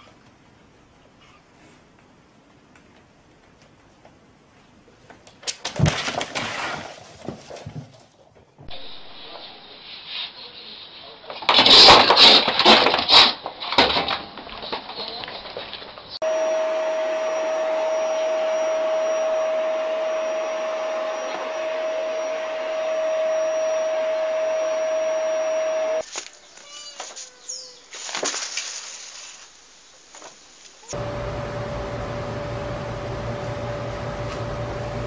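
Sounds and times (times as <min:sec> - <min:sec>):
small motor whirring: 0:16.2 - 0:26.0
rustling: 0:26.0 - 0:30.9.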